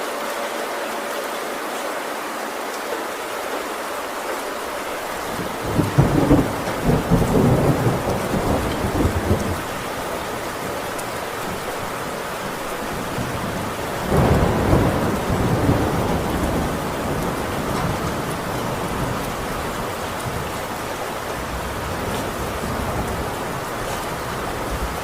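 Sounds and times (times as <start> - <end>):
heavy rain on a tin roof: 0.0 - 25.0
rolling thunder: 5.0 - 12.2, 12.9 - 25.0.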